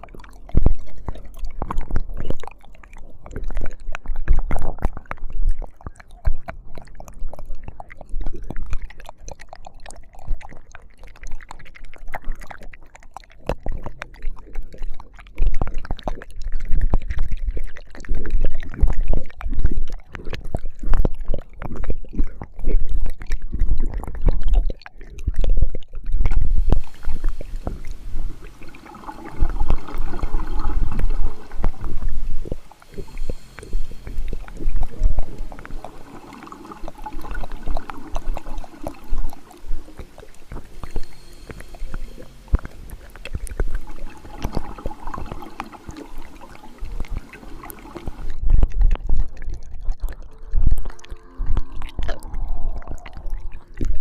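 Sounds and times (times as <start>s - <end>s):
wet mouth clicks and slurps: 0.0s - 54.0s.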